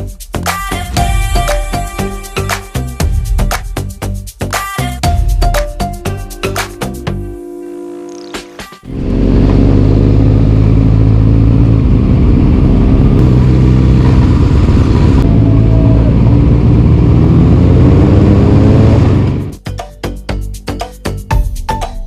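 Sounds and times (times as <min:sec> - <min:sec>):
motorcycle engine running: 0:08.8 - 0:19.6.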